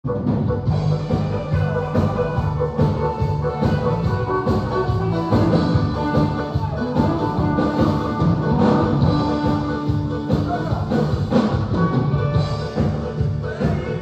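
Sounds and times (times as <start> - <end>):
drum kit beat: 0.0 - 14.0
live band playing: 0.0 - 14.0.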